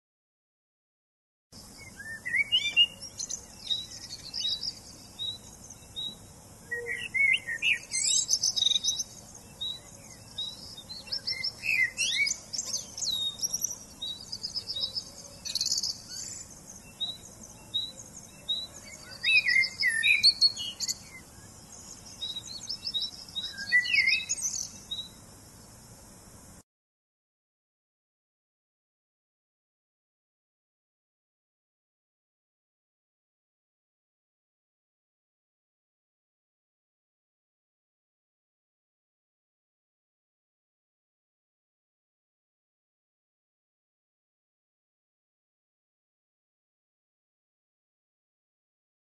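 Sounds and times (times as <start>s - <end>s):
birds chirping and singing: 1.6s - 25.2s.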